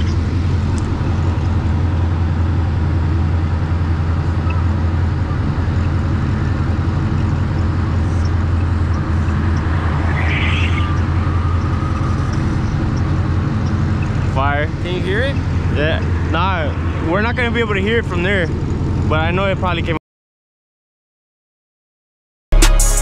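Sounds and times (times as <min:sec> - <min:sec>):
car engine running: 0:00.0 - 0:20.0
brief high-pitched noise: 0:09.3 - 0:12.2.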